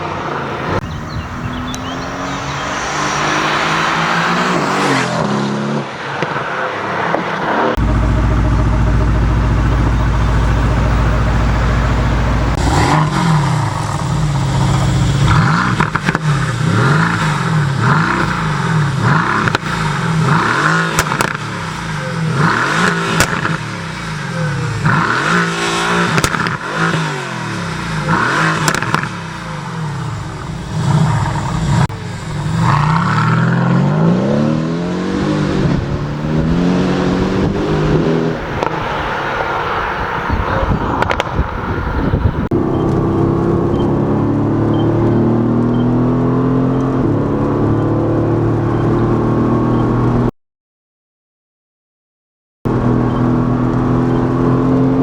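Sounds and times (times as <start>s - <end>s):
car engine revving: 0.0s - 50.3s, 52.7s - 55.0s
exhaust pops: 7.0s - 21.8s, 22.4s - 23.7s, 26.0s - 27.0s, 28.0s - 29.4s, 35.4s - 39.6s, 40.3s - 45.7s.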